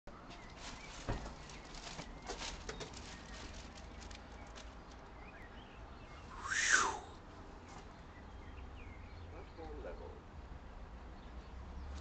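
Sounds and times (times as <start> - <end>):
birds chirping: 0.1 - 12.0
loud harsh bird call: 6.2 - 7.2.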